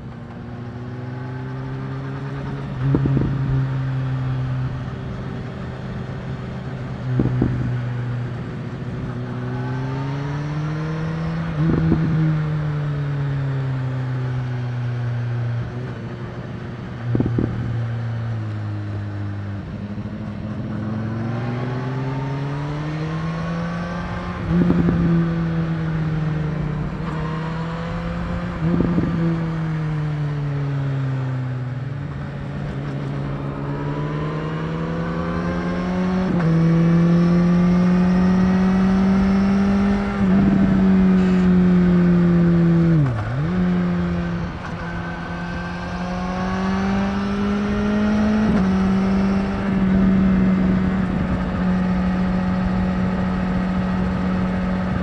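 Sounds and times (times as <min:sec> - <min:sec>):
motorcycle engine revving: 0:00.0 - 0:55.0
wind rush: 0:26.7 - 0:29.6, 0:44.0 - 0:55.0.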